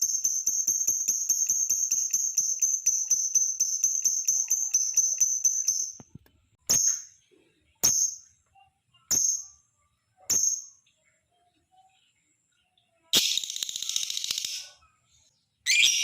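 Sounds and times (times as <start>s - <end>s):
lovebird shrill chirps: 15.6s - 16.0s.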